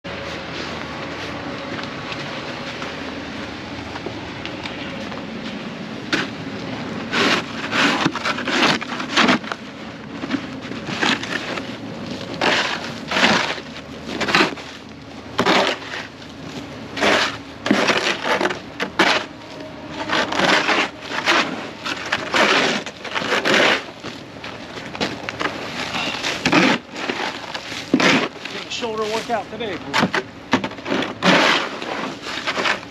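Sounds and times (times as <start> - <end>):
snow shovel scraping ice: 7.0 - 9.6, 10.2 - 24.2, 25.4 - 32.9
ice cracking: 20.0 - 30.2.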